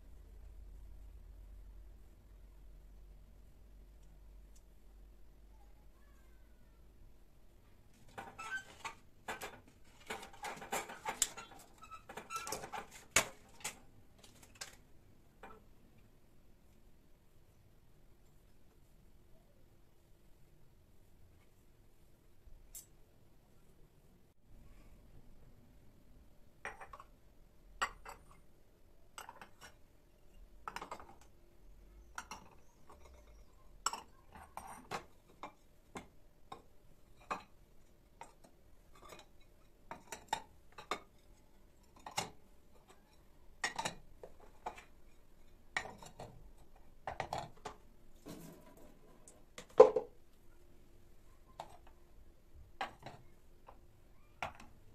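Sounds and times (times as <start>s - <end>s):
hard objects knocking and clinking: 49.6s - 50.2s.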